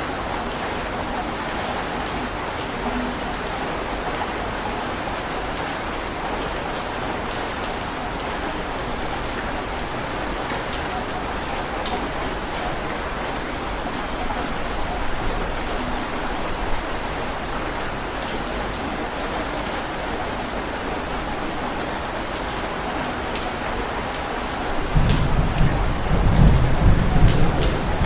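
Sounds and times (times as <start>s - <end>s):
heavy rain falling: 0.0s - 28.0s
low thunder rumble: 24.8s - 28.0s.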